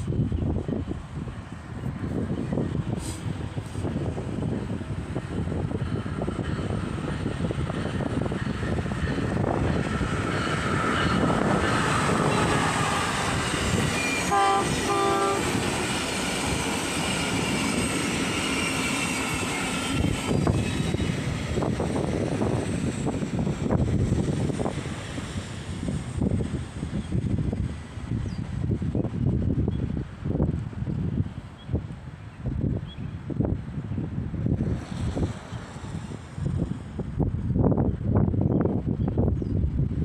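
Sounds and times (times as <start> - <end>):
train wheels rumbling on track: 0.0 - 40.0
train horn blasts: 11.2 - 15.8.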